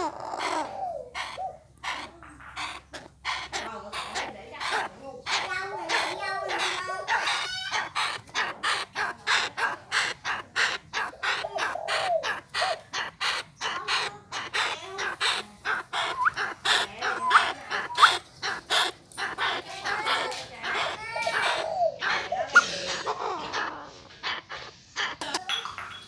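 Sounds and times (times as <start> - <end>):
francolin harsh grating calls: 0.0 - 25.3.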